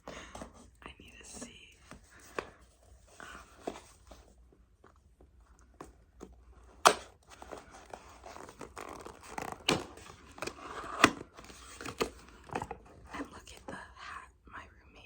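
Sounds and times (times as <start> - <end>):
packaging rustling and tearing: 6.9 - 13.0.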